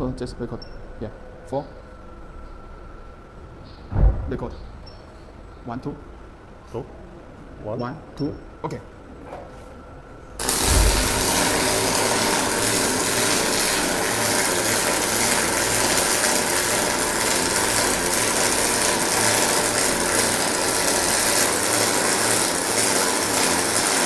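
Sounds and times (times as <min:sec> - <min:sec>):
industrial robot running: 0:10.4 - 0:24.0.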